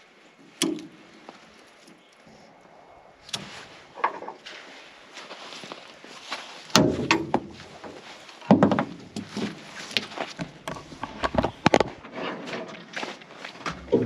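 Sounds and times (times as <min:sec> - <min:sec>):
irregular knocks and heavy thuds: 0:06.7 - 0:12.9, 0:13.6 - 0:14.0.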